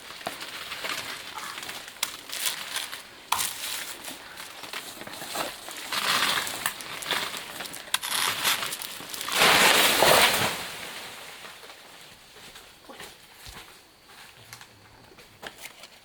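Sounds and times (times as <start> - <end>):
leaves rustling and crackling: 0.0 - 13.6.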